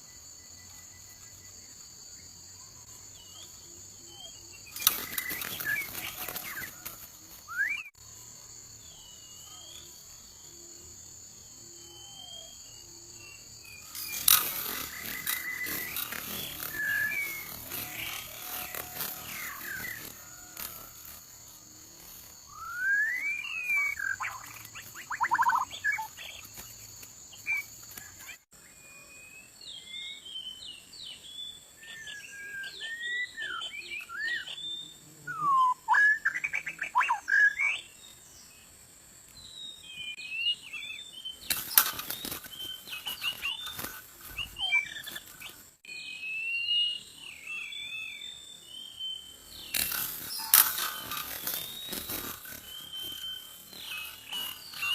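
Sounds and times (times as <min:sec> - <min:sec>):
bird whistles and chirps: 0:04.1 - 0:07.9, 0:13.7 - 0:20.5, 0:22.5 - 0:26.5, 0:31.9 - 0:37.9, 0:39.7 - 0:54.9
sharp rustling clatters: 0:04.7 - 0:07.5, 0:13.7 - 0:22.4, 0:41.4 - 0:45.6, 0:49.6 - 0:54.9.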